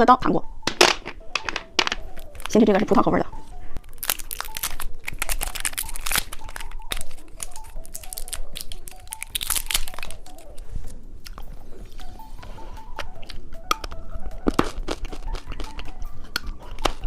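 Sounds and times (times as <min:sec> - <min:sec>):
soft background music: 0:00.0 - 0:17.0
candy crunching: 0:00.7 - 0:03.0, 0:03.8 - 0:12.0, 0:12.9 - 0:17.0
plastic wrapper crinkling: 0:01.4 - 0:02.6, 0:03.8 - 0:10.7.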